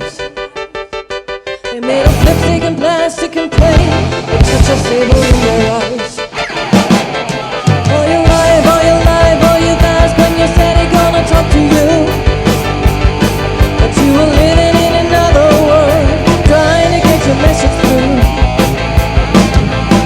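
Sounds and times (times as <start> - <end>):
rock band playing: 0.0 - 20.0
steady drum beat: 6.6 - 20.0
lead vocals singing: 7.4 - 12.2, 13.8 - 18.4.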